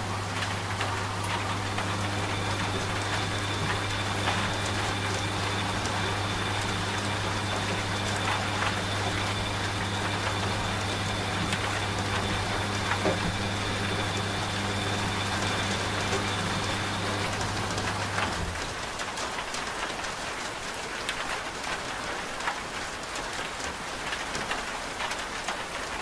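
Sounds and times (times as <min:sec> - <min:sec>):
faint high whine: 0:00.0 - 0:18.2
washing machine motor hum: 0:00.0 - 0:19.1
steady rain: 0:00.0 - 0:26.0.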